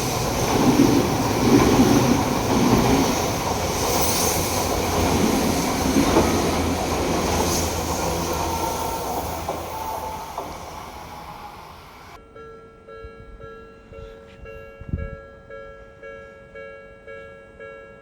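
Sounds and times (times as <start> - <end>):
wheels clattering over rail joints: 0.0 - 11.0
train rumble: 0.0 - 12.2
wheel squeal: 7.2 - 12.2.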